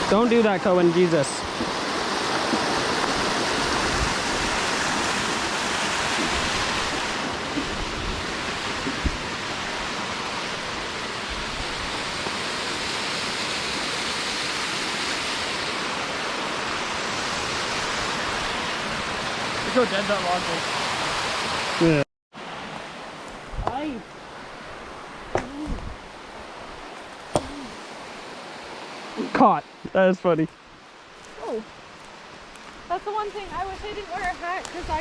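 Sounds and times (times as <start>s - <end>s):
waterfall rushing: 0.0s - 26.7s, 27.3s - 30.4s.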